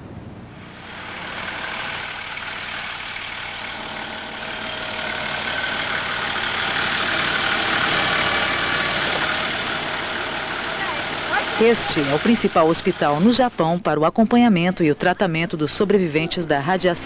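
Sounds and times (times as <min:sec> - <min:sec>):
vehicle engines running: 0:00.5 - 0:13.8
high-pitched squeal: 0:05.6 - 0:13.2.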